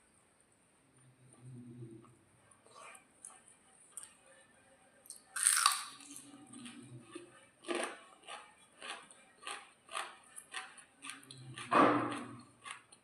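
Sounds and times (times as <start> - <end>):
person chewing: 5.2 - 13.0
crunchy food bite: 5.4 - 6.2.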